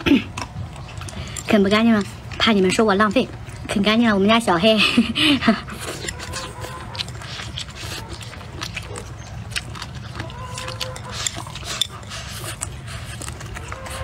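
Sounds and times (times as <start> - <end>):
person chewing with mouth clicks: 5.6 - 14.0.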